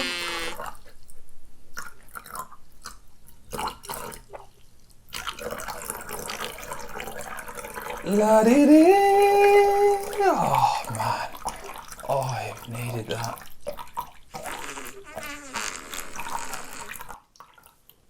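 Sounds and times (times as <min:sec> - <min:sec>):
urine trickling into toilet: 0:01.8 - 0:18.0
man singing: 0:08.0 - 0:11.3.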